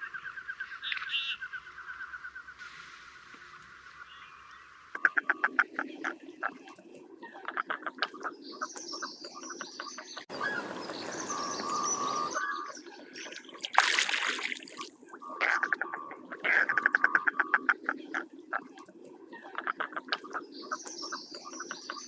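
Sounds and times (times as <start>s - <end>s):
high bird chirps: 8.2s - 13.4s.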